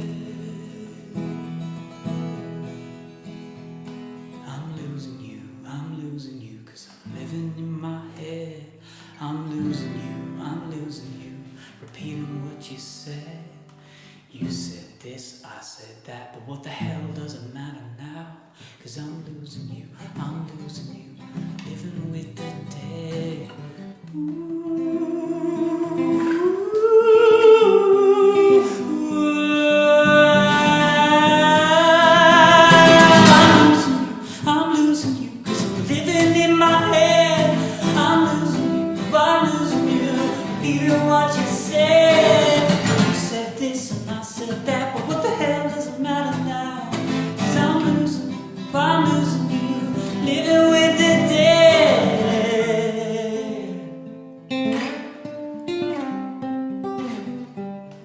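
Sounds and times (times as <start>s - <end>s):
strummed acoustic guitar: 0.0s - 15.1s, 16.6s - 58.0s
person singing wordless ooh notes: 24.1s - 53.9s.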